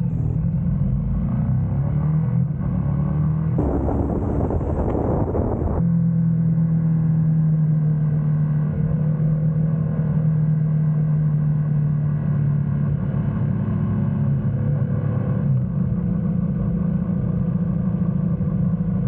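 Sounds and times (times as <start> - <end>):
loud rush of noise: 3.6 - 5.8
motorcycle engine humming: 3.6 - 5.8.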